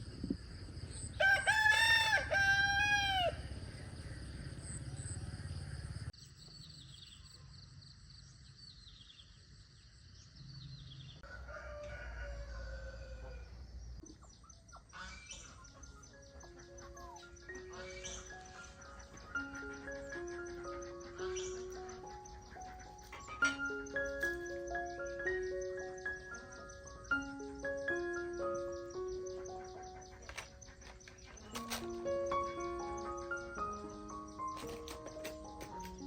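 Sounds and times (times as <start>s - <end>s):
rooster crowing: 1.2s - 3.5s, 11.2s - 13.6s
small birds chirping: 3.3s - 11.2s, 13.7s - 36.0s.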